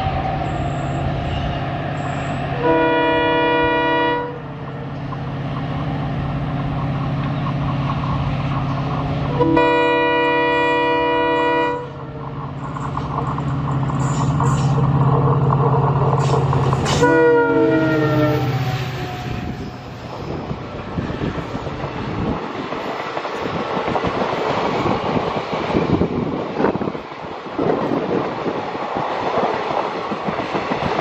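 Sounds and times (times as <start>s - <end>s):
locomotive horn: 2.5s - 4.5s, 9.3s - 12.0s, 16.8s - 19.8s
train wheels clacking on rails: 12.2s - 17.4s, 20.2s - 31.0s.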